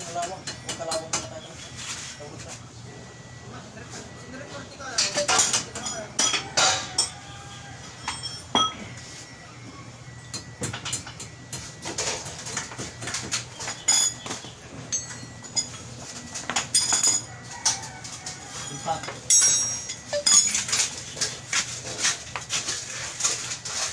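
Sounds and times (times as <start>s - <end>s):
metal hand tools clinking: 18.6s - 20.9s.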